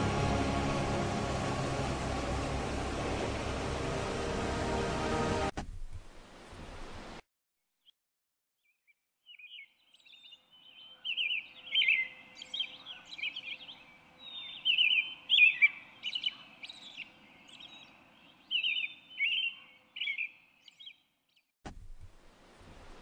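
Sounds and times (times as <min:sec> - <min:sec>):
songbird chirping: 0:08.6 - 0:21.5.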